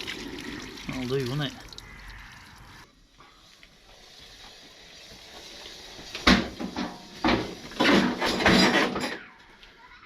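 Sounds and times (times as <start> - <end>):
water running from hose: 0.0 - 2.8, 3.4 - 8.0.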